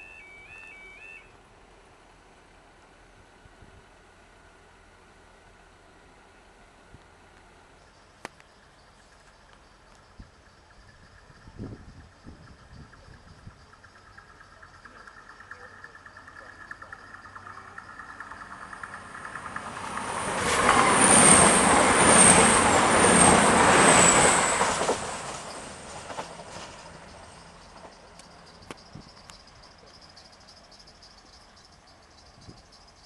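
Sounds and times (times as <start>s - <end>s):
insects chirring: 7.8s - 24.0s, 26.6s - 33.0s
train wheels and engines rushing: 9.8s - 31.2s
high ringing whine: 10.1s - 20.3s, 26.7s - 33.0s.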